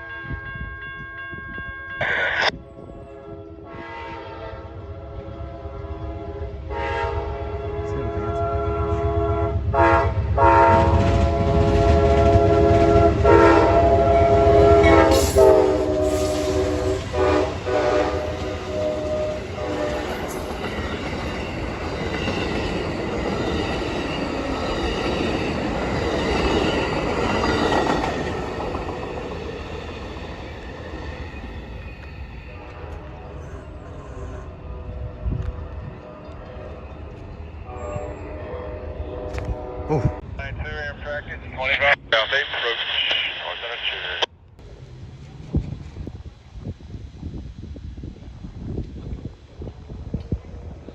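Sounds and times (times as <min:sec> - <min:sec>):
train rumbling past: 0:00.0 - 0:42.6, 0:43.8 - 0:50.9
locomotive air horn blasts: 0:03.1 - 0:20.1, 0:37.6 - 0:40.2.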